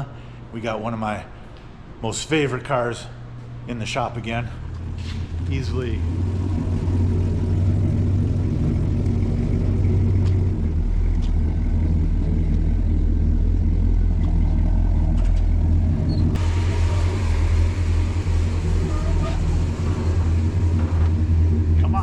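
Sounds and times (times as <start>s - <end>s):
car engine running: 4.4s - 22.0s.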